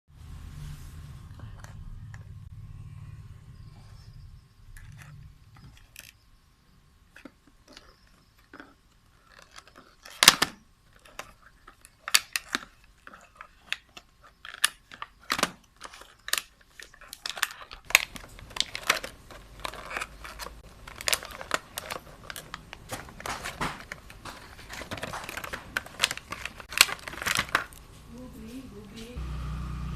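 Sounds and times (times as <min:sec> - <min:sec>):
packaging crinkling and tearing: 0:07.7 - 0:28.2.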